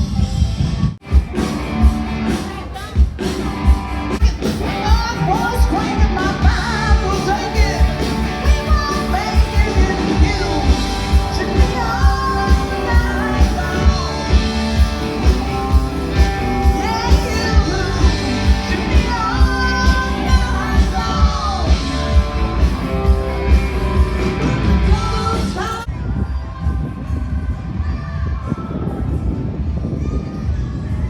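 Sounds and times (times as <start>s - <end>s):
person singing: 2.3s - 27.1s.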